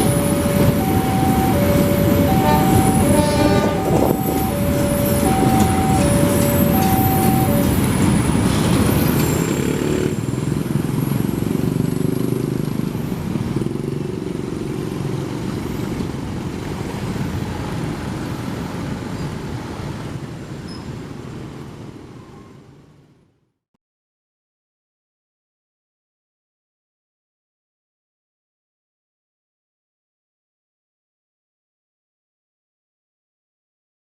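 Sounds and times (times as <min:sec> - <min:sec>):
motorbikes and cars passing: 0:00.0 - 0:20.6.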